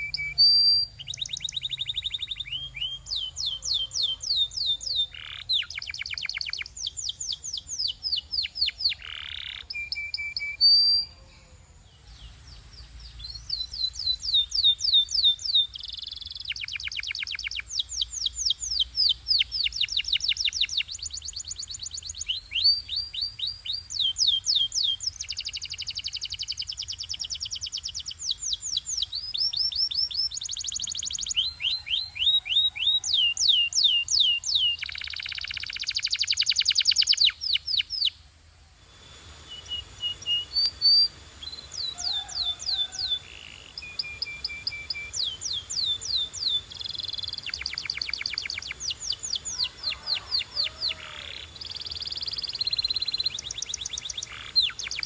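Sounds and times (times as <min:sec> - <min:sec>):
canary singing trills: 0:00.0 - 0:38.2, 0:38.8 - 0:55.0.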